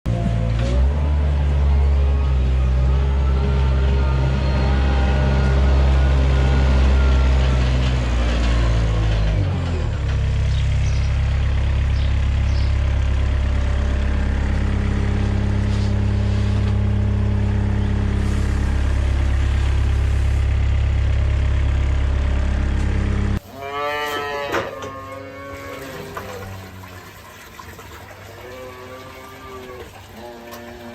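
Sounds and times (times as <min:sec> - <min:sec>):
engine humming steadily: 0:00.1 - 0:23.4.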